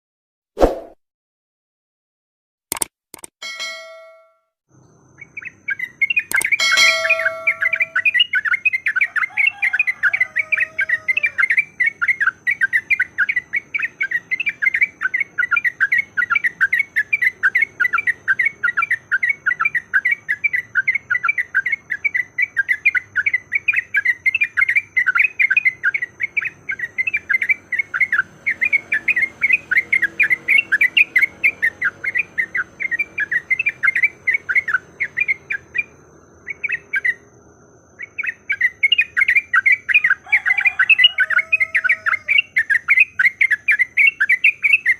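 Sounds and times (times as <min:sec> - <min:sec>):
bright chime: 0:03.4 - 0:04.5, 0:06.3 - 0:08.0
bird chattering call: 0:05.2 - 0:37.2, 0:38.0 - 0:44.9.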